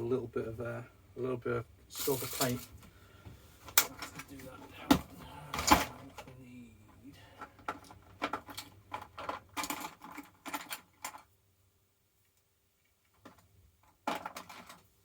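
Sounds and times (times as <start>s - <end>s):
small objects clattering on workbench: 7.4s - 11.3s, 13.1s - 14.9s.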